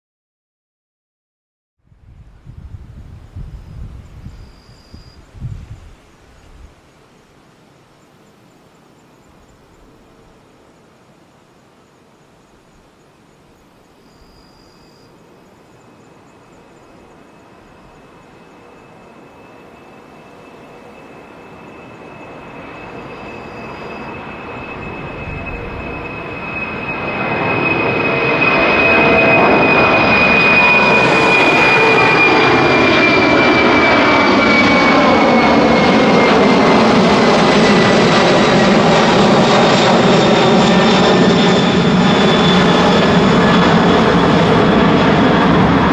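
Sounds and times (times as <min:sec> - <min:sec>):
high engine whine: 0:13.6 - 0:45.9
jet engines roaring: 0:15.8 - 0:45.9.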